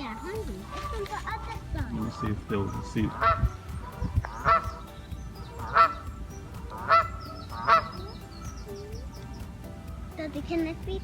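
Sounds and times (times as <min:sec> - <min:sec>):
geese honking: 0:00.0 - 0:09.5.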